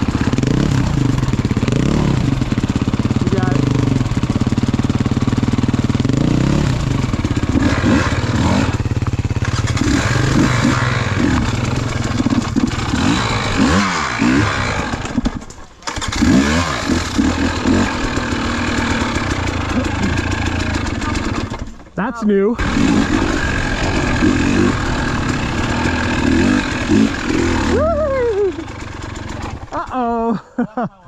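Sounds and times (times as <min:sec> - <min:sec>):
dirt bike engine revving: 0:00.0 - 0:22.0, 0:22.6 - 0:30.2.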